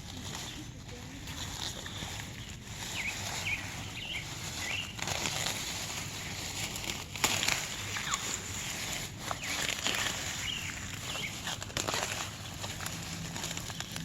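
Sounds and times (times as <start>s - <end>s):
rustling of weeds or leaves: 0.0s - 14.0s
bird chirping: 1.9s - 5.4s, 7.8s - 11.6s.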